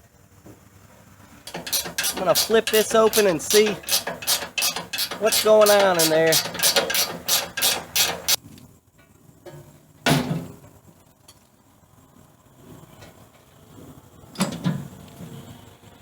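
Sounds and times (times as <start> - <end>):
loud metal clank: 1.5 - 8.4
metal clicking: 1.5 - 8.4.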